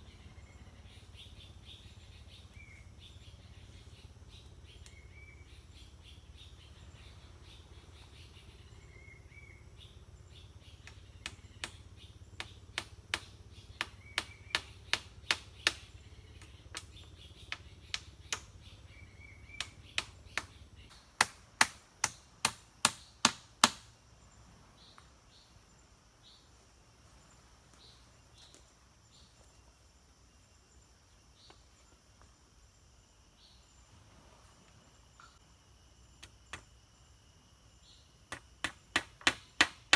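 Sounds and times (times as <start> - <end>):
bird chirping: 0.0 - 21.1
sharp strikes on wood: 10.8 - 15.9, 19.6 - 23.9, 38.3 - 39.9.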